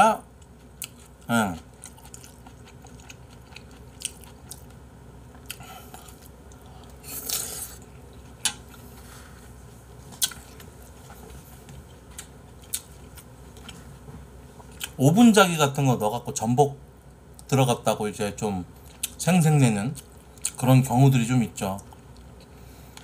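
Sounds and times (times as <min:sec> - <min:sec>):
man chewing with mouth clicks: 0:00.4 - 0:08.8, 0:10.1 - 0:13.9, 0:18.8 - 0:19.2, 0:20.0 - 0:20.6.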